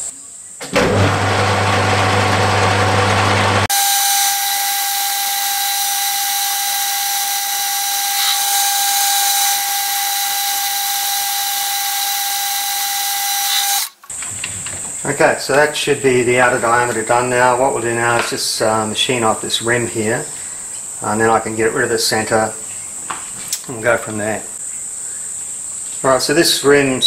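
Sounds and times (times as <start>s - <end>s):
metal lathe running: 0.8s - 13.9s.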